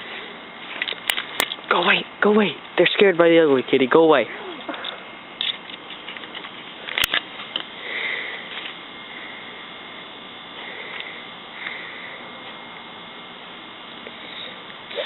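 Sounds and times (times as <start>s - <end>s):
microphone hiss and hum: 0.0s - 15.0s.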